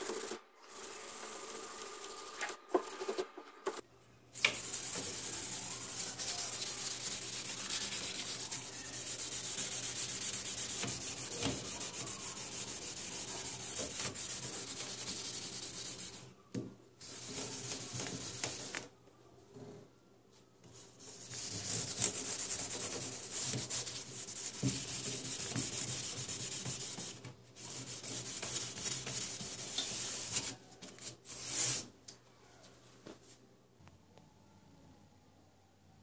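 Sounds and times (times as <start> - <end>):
sanding scraping: 4.6 - 16.2, 21.2 - 30.6.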